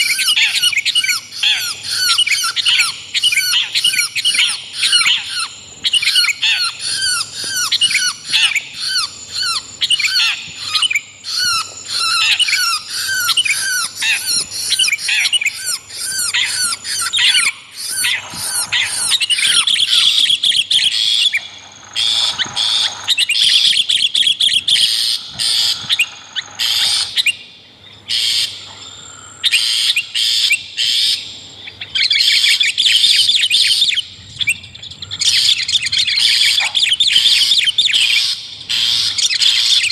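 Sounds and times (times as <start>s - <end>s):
scratchy bird chattering: 0.0s - 27.3s
bird calls with falling notes: 0.0s - 27.4s.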